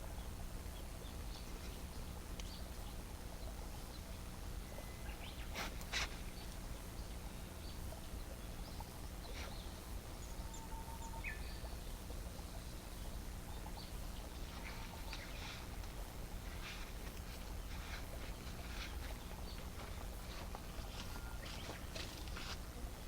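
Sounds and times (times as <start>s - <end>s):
low steady rumble: 0.0s - 23.0s.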